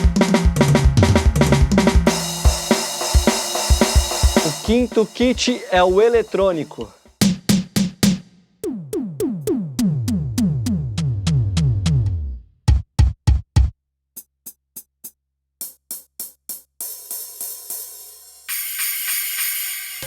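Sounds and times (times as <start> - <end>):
deep drum hits: 0.0 - 6.6
electronic drum tom hits: 0.0 - 13.7
sharp high drum ticks: 0.0 - 20.0.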